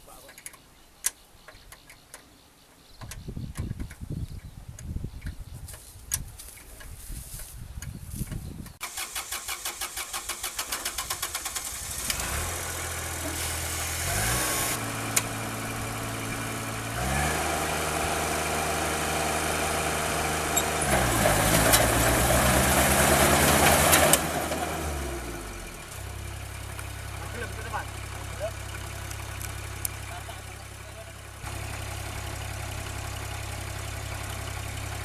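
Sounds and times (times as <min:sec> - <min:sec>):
starter motor cranking: 0:08.8 - 0:15.4
harvester engine revving: 0:08.8 - 0:35.0.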